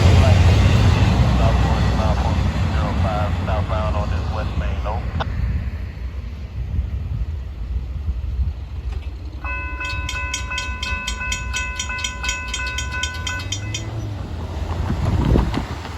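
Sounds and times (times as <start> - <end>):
freight train rumbling past: 0.0 - 15.9
railroad crossing bell ringing: 9.4 - 14.5.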